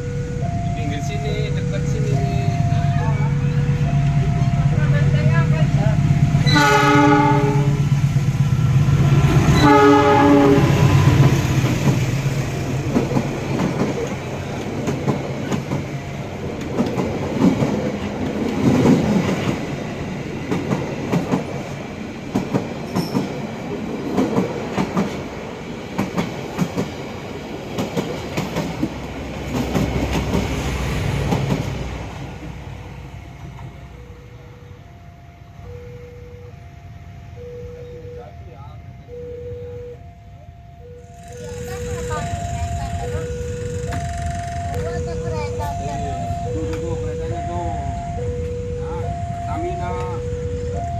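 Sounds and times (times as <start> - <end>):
two-tone crossing warning bell: 0.0 - 27.2, 28.5 - 50.9
train wheels clacking on rails: 3.7 - 32.4, 41.1 - 47.4
train horn blasts: 6.4 - 7.9, 9.5 - 11.2.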